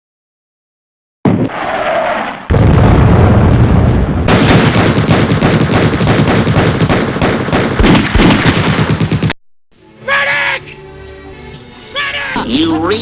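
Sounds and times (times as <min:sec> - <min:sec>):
rapid gunfire and explosions: 0:01.3 - 0:09.4.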